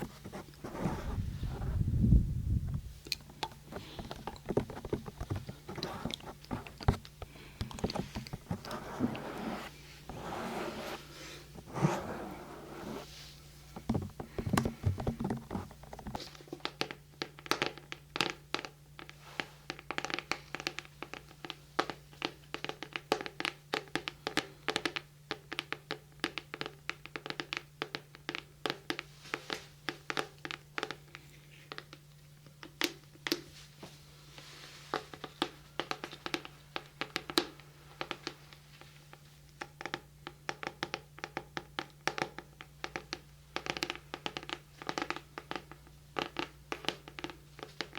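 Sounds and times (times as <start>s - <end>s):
fingertip tapping and scratching: 7.7s - 11.0s.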